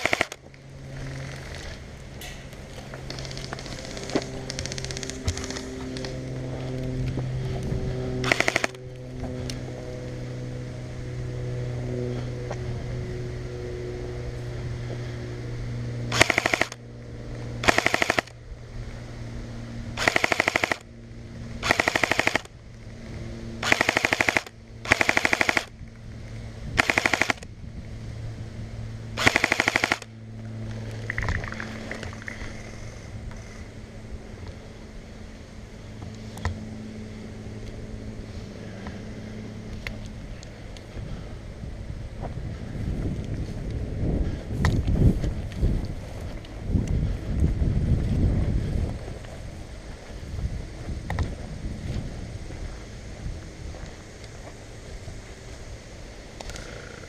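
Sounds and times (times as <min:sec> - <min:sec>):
airsoft rifle full-auto bursts: 0:00.0 - 0:00.4, 0:08.2 - 0:08.8, 0:16.1 - 0:16.8, 0:17.6 - 0:18.4, 0:20.0 - 0:20.9, 0:21.6 - 0:22.5, 0:23.6 - 0:25.7, 0:26.8 - 0:27.4, 0:29.2 - 0:30.1.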